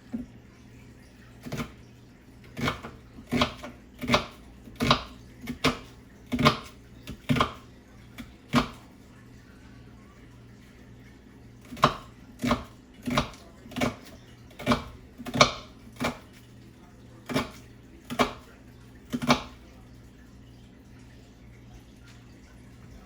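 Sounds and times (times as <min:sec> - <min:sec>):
knife chopping on cutting board: 0:01.4 - 0:01.8, 0:02.5 - 0:08.8, 0:11.6 - 0:16.4, 0:17.3 - 0:18.5, 0:19.1 - 0:19.6.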